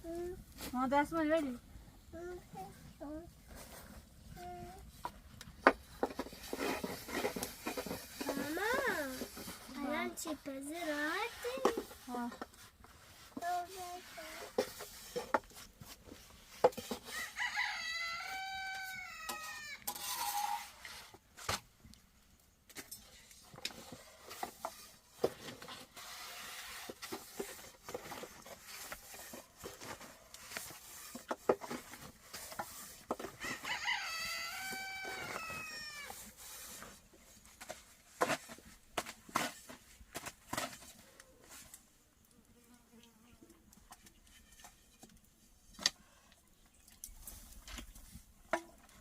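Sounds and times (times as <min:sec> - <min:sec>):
rooster crowing: 0:17.1 - 0:19.9, 0:33.4 - 0:36.1.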